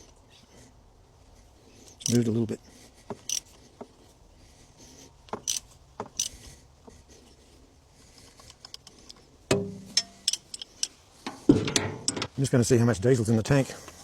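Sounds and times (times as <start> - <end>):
spanner clicking and scraping on bolt: 2.0 - 2.3, 3.1 - 3.5, 5.3 - 6.4, 8.4 - 12.4
metal knock and ring: 9.5 - 10.4.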